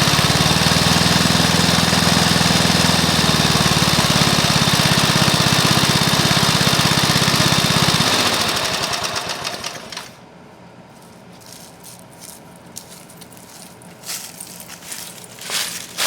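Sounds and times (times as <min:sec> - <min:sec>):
lawnmower engine running: 0:00.0 - 0:10.2.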